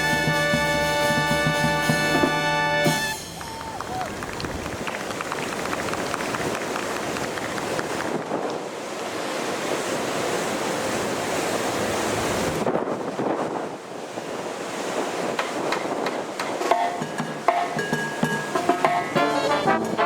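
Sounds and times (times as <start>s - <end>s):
brass marching band playing: 0.0s - 3.6s, 18.4s - 20.0s
wind buffeting microphone: 3.4s - 17.0s.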